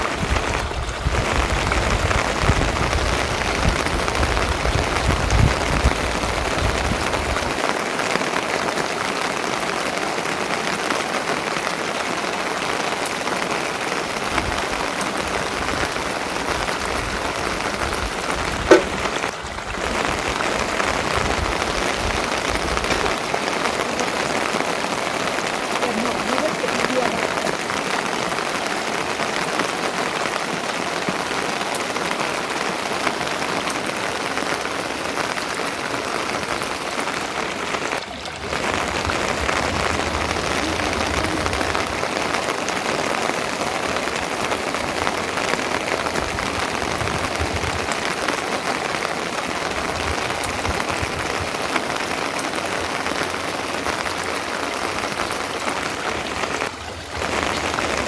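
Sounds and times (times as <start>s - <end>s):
rain pattering on a surface: 0.0s - 58.0s.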